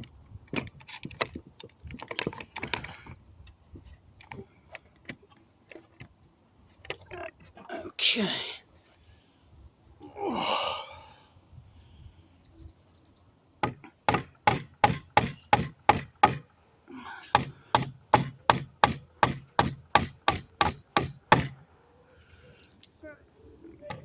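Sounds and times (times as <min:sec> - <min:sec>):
hammer striking nails in wood: 0:13.6 - 0:16.5, 0:17.3 - 0:21.6.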